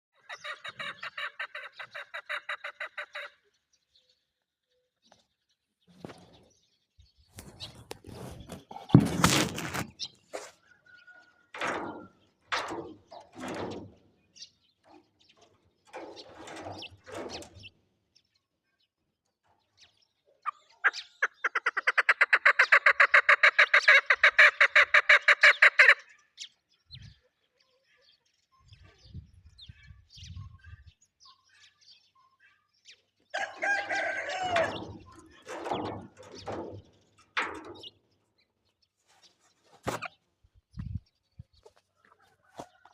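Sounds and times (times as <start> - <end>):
partridge calling: 0.2 - 3.4, 20.4 - 26.2
rapid pulsed bird chattering: 0.2 - 3.4, 20.4 - 26.1.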